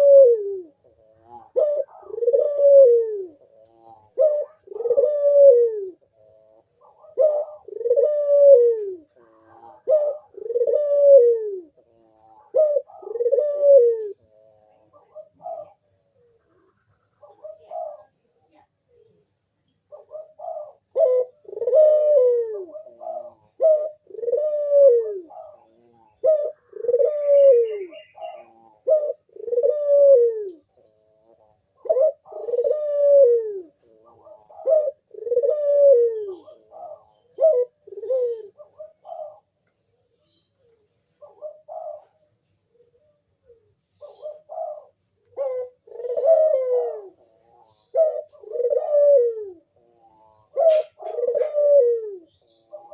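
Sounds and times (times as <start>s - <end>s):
dove cooing: 0.0s - 52.9s.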